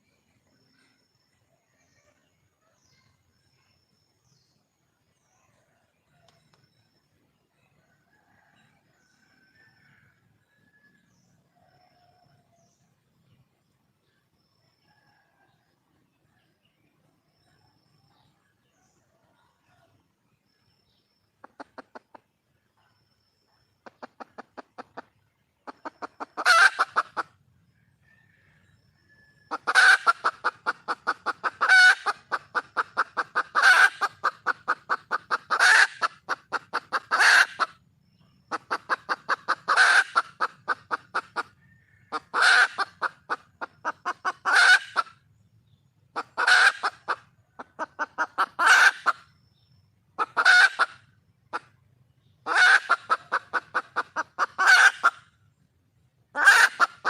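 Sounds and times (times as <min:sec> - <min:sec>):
hen cackling: 0:21.4 - 0:22.2, 0:23.8 - 0:27.4, 0:29.5 - 0:37.8, 0:38.5 - 0:45.2, 0:46.1 - 0:49.3, 0:50.2 - 0:51.8, 0:52.4 - 0:55.3, 0:56.3 - 0:57.0.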